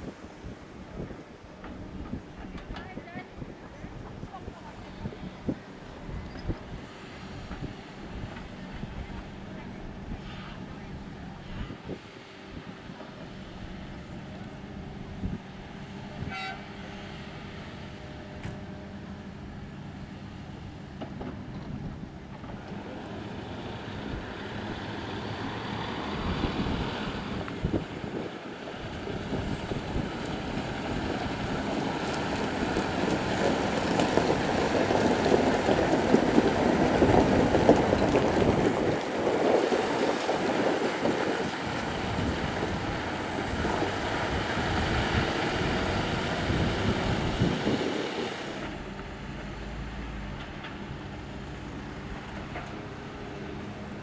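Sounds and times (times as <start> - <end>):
diesel engines under load: 0.0 - 54.0
steady engine hum: 0.0 - 54.0
dirt and rock pouring into truck: 28.8 - 48.7.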